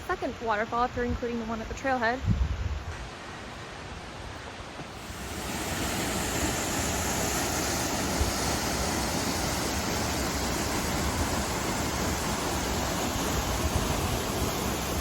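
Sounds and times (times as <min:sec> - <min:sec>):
waterfall rushing: 0:04.9 - 0:15.0.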